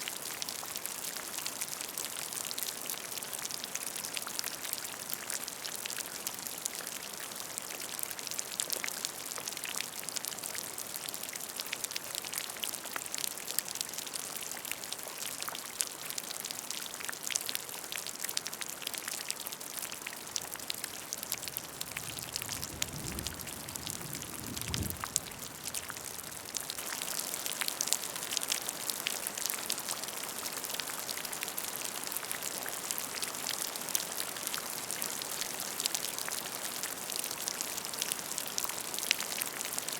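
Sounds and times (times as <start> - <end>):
rain splashing into puddle: 0.0 - 39.9
low rumble: 22.0 - 26.4.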